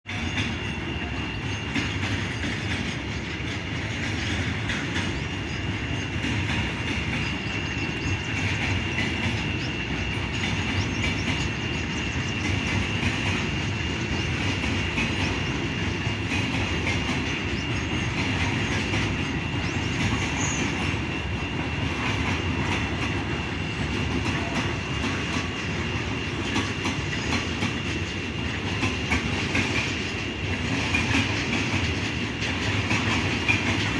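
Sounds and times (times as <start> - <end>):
train wheels clacking on rails: 0.0 - 33.9.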